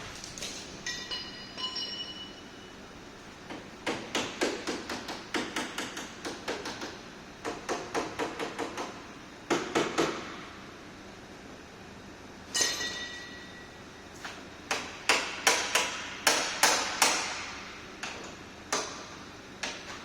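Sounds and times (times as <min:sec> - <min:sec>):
hammer striking car bodywork: 0:03.5 - 0:10.5, 0:14.7 - 0:20.0.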